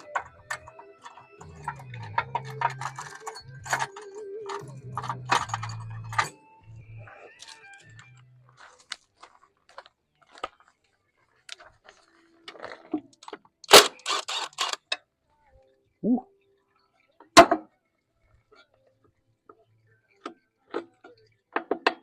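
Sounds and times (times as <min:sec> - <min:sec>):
metal tools clinking and rattling: 0:00.0 - 0:06.6.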